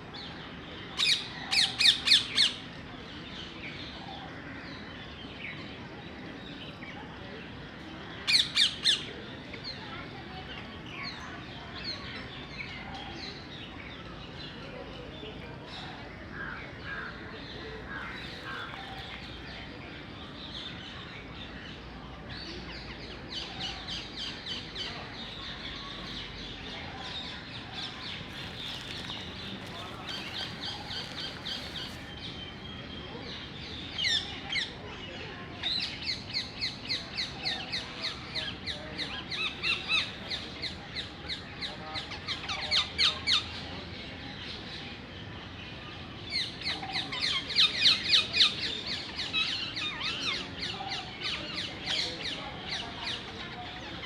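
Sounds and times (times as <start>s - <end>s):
small birds chirping: 8.1s - 34.8s.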